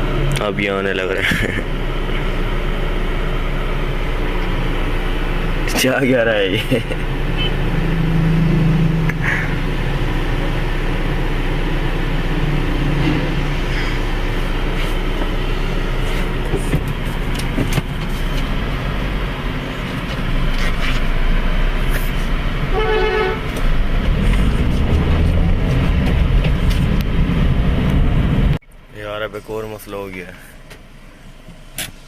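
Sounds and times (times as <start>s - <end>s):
car engine and road rumble: 0.0s - 32.0s
car horn honk: 7.3s - 7.7s, 22.7s - 23.6s.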